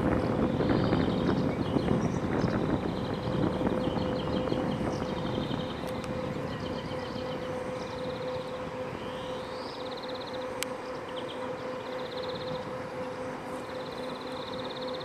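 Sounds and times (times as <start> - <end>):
ship machinery droning: 0.0 - 15.0.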